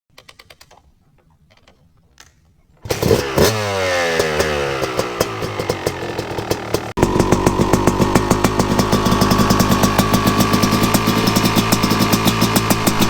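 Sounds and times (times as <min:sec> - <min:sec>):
two-stroke engine starting: 0:02.8 - 0:13.0
engine idling with popping: 0:04.9 - 0:13.0.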